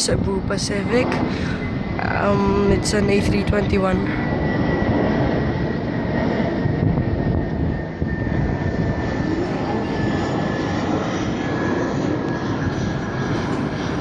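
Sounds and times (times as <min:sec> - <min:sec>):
jet airliner passing overhead: 0:00.0 - 0:14.0
faint thin engine whine: 0:00.5 - 0:14.0.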